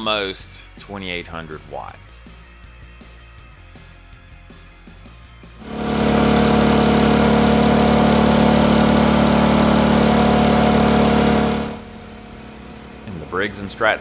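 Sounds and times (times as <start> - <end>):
hairdryers blowing air: 5.6 - 11.9
generator engine humming: 5.6 - 14.0.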